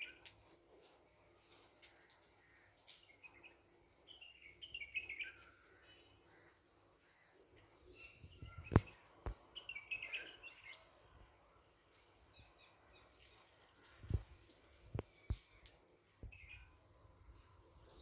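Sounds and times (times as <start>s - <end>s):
bird chirping: 2.4s - 11.1s, 12.2s - 16.8s.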